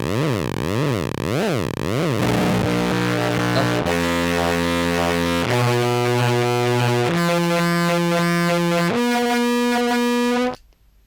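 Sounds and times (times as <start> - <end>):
buzzy fuzzed clarinet notes: 2.2 - 10.6.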